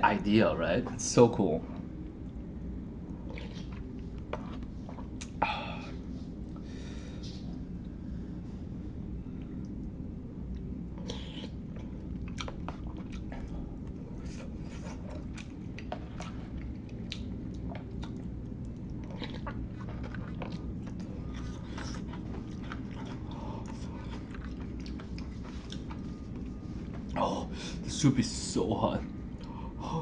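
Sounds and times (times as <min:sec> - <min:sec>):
steady low hum: 0:00.0 - 0:30.0
person chewing noodles: 0:03.0 - 0:06.7, 0:09.4 - 0:27.5.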